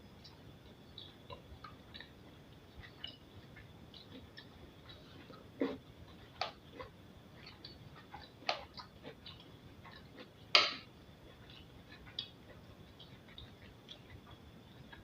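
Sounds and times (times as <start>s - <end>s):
person chewing: 0.2s - 15.0s.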